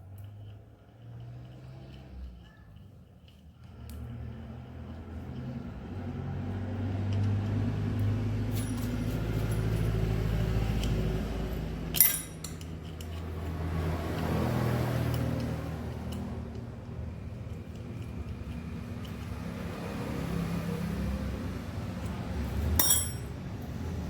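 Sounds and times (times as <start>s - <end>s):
vehicle engine running: 3.6s - 24.0s
sharp metallic clink: 8.5s - 9.2s, 11.9s - 12.7s, 22.8s - 23.4s.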